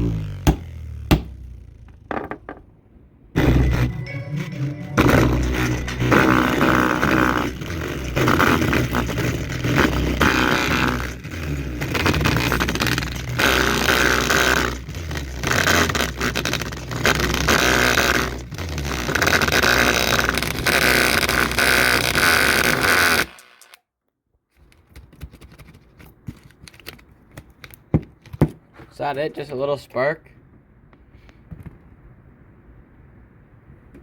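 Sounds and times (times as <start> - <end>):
distorted loudspeaker buzz: 3.4 - 23.4.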